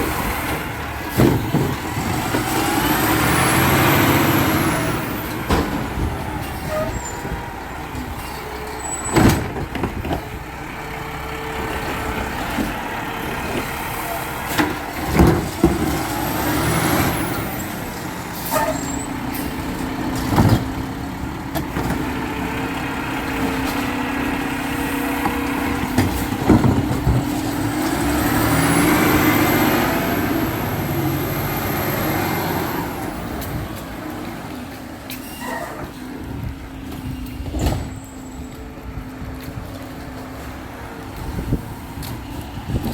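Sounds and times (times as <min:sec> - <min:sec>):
garbage truck running: 0:00.0 - 0:42.9.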